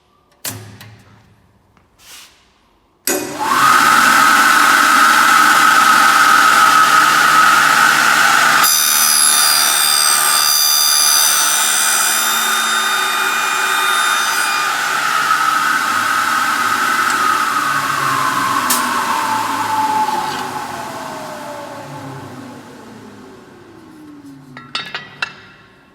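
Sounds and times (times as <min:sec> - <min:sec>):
cutter high ringing: 0:03.1 - 0:22.0
milling machine motor whine: 0:03.1 - 0:25.0.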